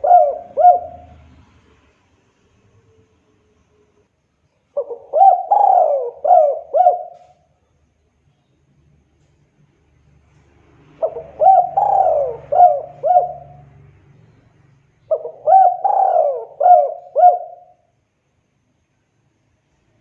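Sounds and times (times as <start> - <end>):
dove cooing: 0.0 - 1.4, 4.8 - 7.4, 11.0 - 13.8, 15.1 - 17.8.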